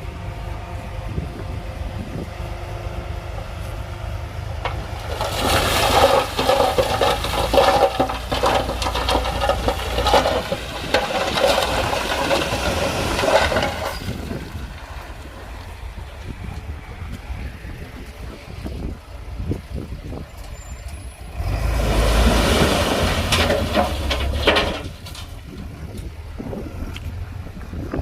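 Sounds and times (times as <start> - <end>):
diesel earthmoving machinery running: 0.0 - 28.0
loose stone rattling and sliding: 4.6 - 14.9, 21.9 - 26.2.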